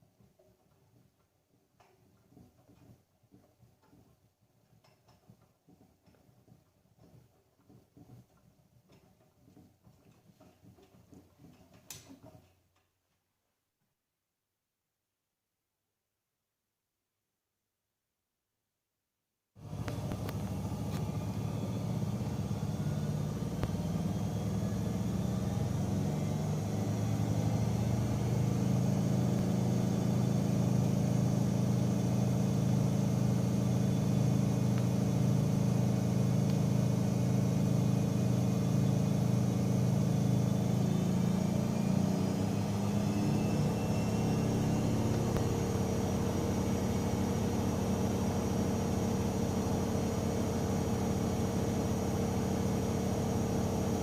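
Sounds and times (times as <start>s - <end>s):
washing machine motor hum: 19.6s - 54.0s.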